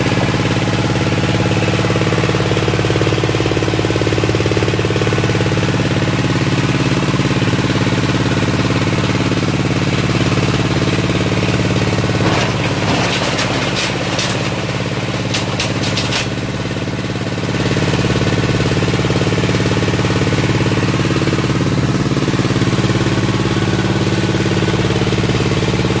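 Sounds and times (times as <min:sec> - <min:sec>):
waste-sorting machine drone: 0:00.0 - 0:26.0
sharp clattering knocks: 0:12.1 - 0:16.4.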